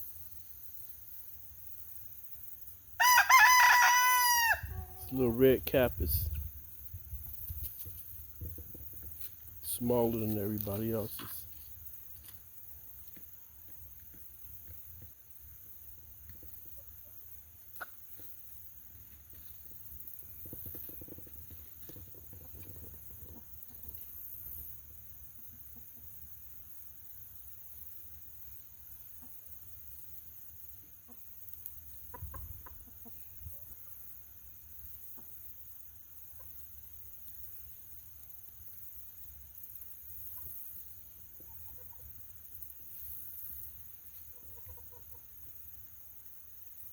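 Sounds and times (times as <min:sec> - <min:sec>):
hens clucking: 0:16.5 - 0:18.4, 0:31.9 - 0:33.9, 0:41.3 - 0:42.1, 0:44.2 - 0:45.3.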